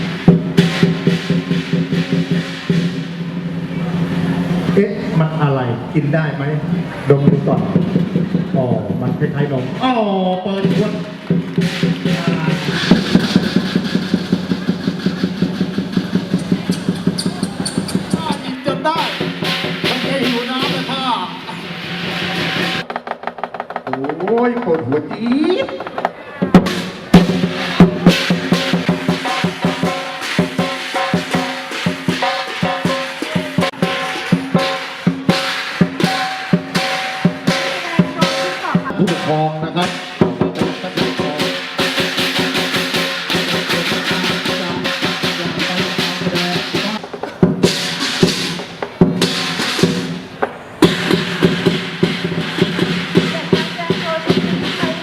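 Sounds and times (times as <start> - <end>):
drum fast even beat: 0.0 - 55.0
ringing pitched percussion: 10.6 - 22.9, 26.6 - 55.0.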